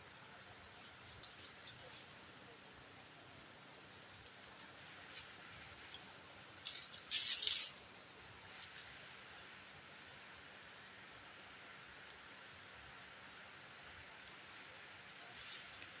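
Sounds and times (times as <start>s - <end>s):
forest ambience: 0.0s - 16.0s.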